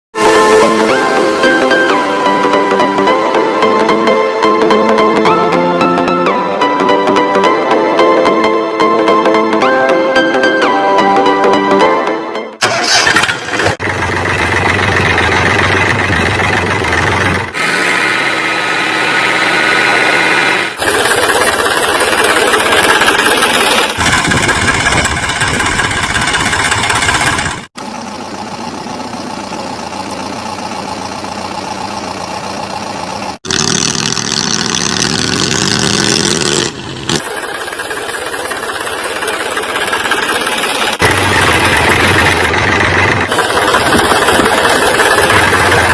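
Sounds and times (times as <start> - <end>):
machine engines running: 12.6 - 45.9.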